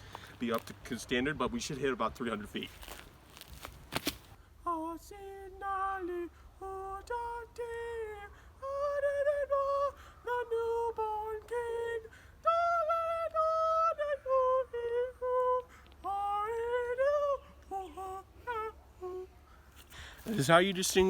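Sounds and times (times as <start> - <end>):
high voice singing slowly: 4.6 - 19.4.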